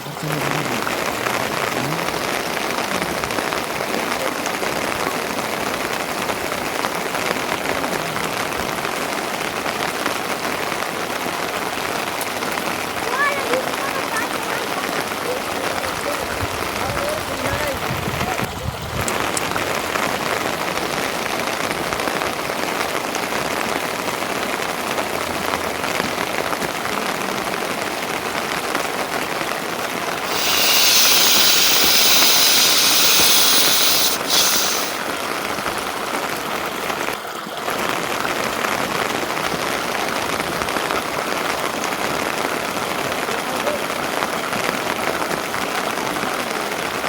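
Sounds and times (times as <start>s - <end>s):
rain falling: 0.0s - 47.0s
high hiss: 30.2s - 35.1s.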